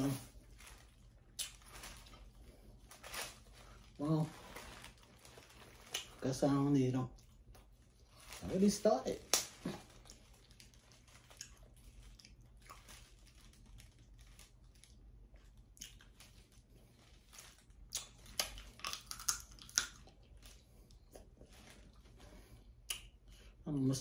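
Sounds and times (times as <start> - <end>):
hands handling food crackling: 0.0 - 23.6
person chewing wetly: 1.1 - 2.5, 9.6 - 17.0, 17.8 - 22.1.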